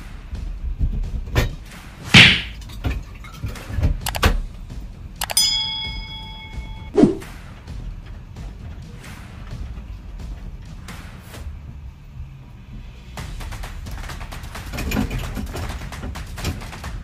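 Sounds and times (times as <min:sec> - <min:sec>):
thud: 0:02.2 - 0:02.6
struck metal part ringing: 0:05.2 - 0:07.0.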